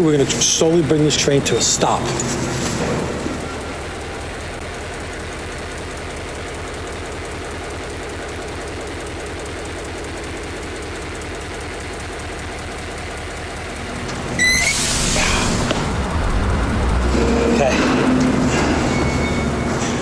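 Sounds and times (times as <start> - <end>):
train braking: 0.0 - 5.3, 13.7 - 20.0
locomotive engine rumble: 0.0 - 20.0
train rolling: 0.0 - 20.0.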